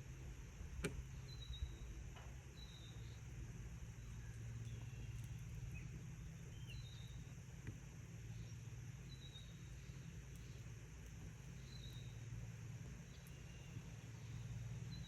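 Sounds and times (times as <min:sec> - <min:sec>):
steady low hum: 0:00.0 - 0:15.0
faint high bird chirps: 0:13.1 - 0:15.0.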